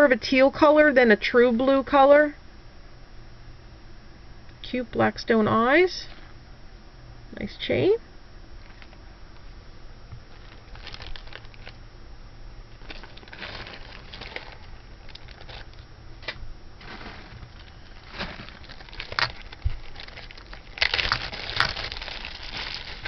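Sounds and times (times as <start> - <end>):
plastic bag crinkling: 8.6 - 9.5, 10.2 - 11.8, 12.7 - 15.9, 16.8 - 23.0.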